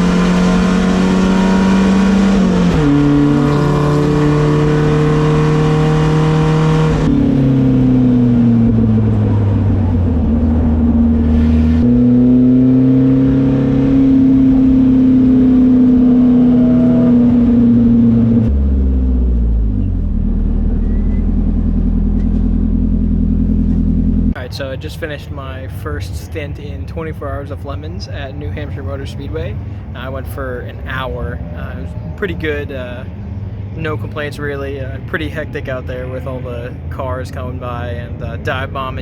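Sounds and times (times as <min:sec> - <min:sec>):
race car engines running hard: 0:00.0 - 0:39.0.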